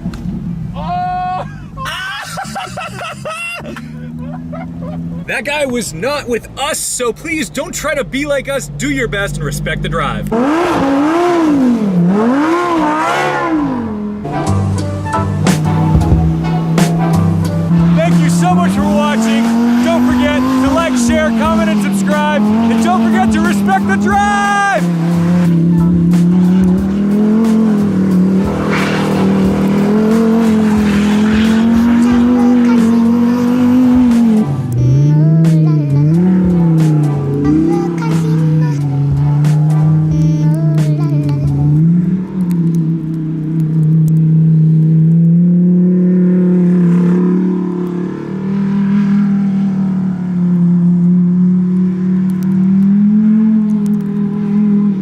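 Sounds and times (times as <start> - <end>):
sports car engine running: 0.0 - 55.0
hissing rush: 16.9 - 33.0.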